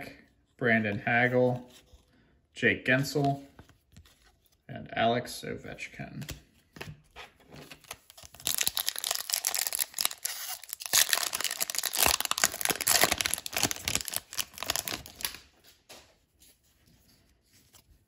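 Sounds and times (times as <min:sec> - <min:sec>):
wrapper tearing and crinkling: 0:07.8 - 0:15.4.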